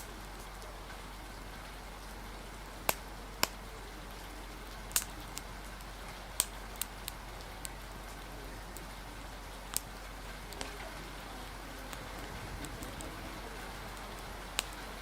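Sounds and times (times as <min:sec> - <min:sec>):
rain hissing: 0:00.0 - 0:15.0
wood fire crackling and popping: 0:00.0 - 0:15.0.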